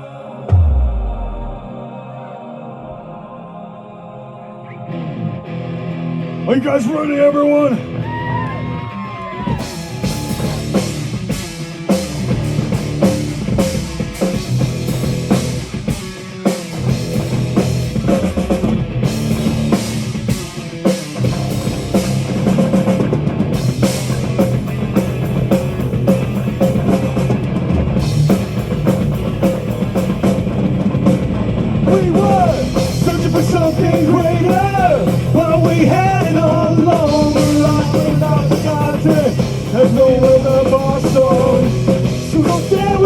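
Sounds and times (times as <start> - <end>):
rapid drum hits: 0.5 - 1.8, 9.9 - 43.0
metal band playing: 0.5 - 2.0, 9.2 - 43.0.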